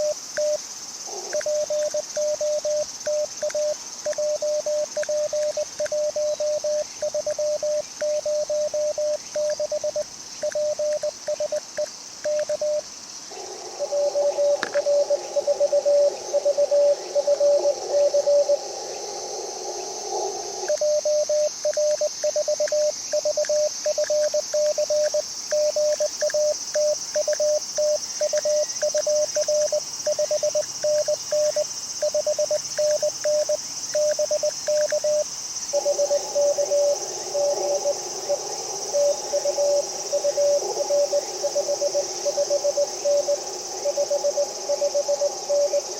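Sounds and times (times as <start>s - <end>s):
morse code sidetone beeps: 0.0s - 0.6s, 1.4s - 12.8s, 20.7s - 35.2s
weak morse signal: 0.0s - 0.6s, 1.4s - 12.8s, 13.9s - 18.6s, 20.7s - 37.9s
receiver hiss: 0.0s - 18.6s, 19.8s - 38.0s
steady high hiss: 0.0s - 45.9s.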